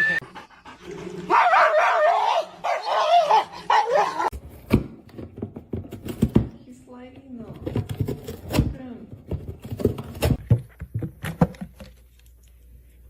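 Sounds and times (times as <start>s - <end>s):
dog whining: 0.0s - 0.5s, 1.3s - 4.3s.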